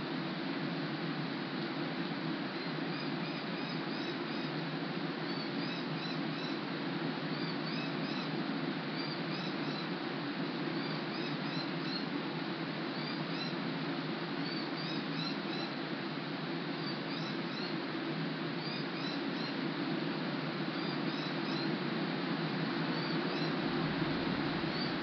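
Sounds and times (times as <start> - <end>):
steady rainfall: 21.7 - 25.0.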